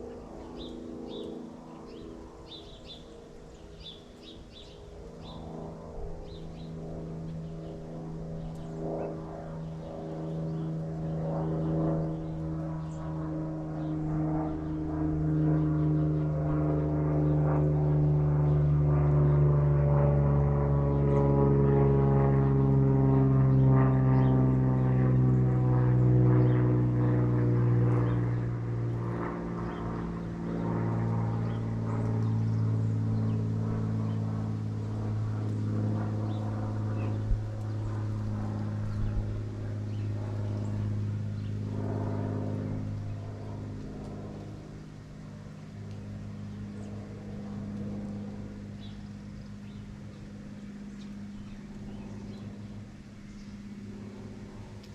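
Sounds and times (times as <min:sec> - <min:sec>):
engine droning: 0:04.5 - 0:54.9.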